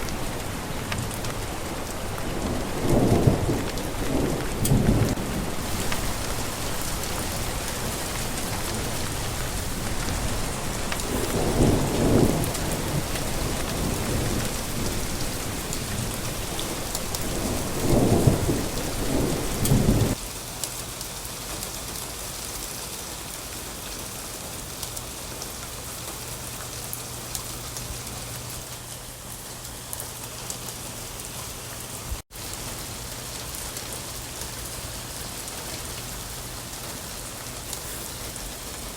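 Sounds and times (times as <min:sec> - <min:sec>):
thunder rumbles: 0:00.0 - 0:20.2
rain on a surface: 0:00.0 - 0:38.9
steady rain: 0:00.0 - 0:38.9.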